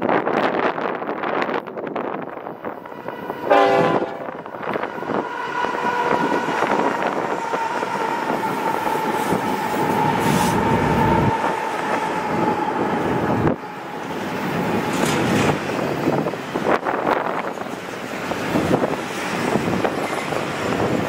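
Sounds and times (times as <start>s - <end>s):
locomotives and cars rumbling: 0.0s - 21.0s
train horn blast: 3.4s - 4.5s.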